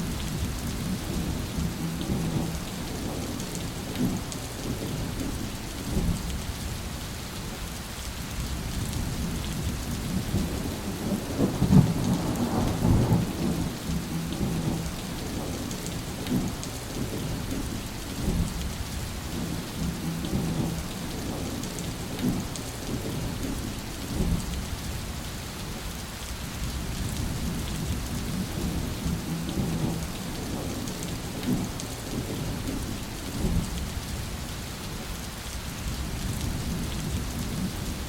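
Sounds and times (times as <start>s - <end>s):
steady rain falling: 0.0s - 38.0s
rolling thunder: 8.8s - 18.7s, 26.7s - 34.1s.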